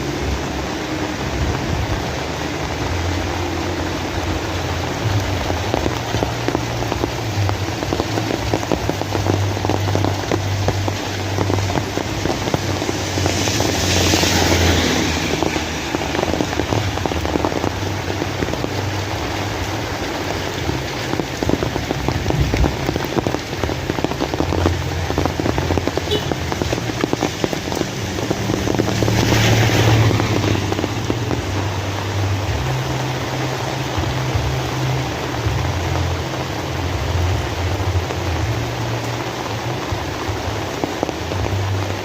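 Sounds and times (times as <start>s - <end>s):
rain pattering: 0.0s - 42.0s.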